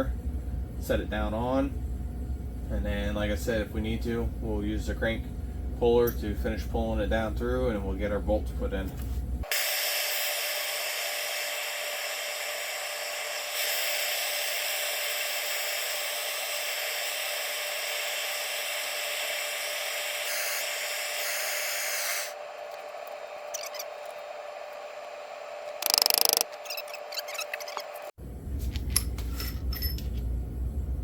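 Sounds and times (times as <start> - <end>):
heat gun blowing: 9.5 - 22.4.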